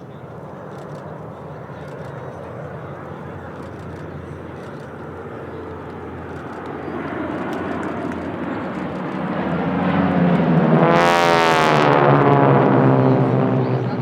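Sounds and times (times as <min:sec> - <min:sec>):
propeller planes flying past: 0:00.0 - 0:14.0.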